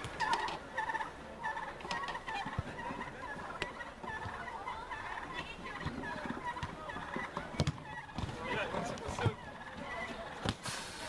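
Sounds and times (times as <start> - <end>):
ball being kicked: 7.4 - 9.4.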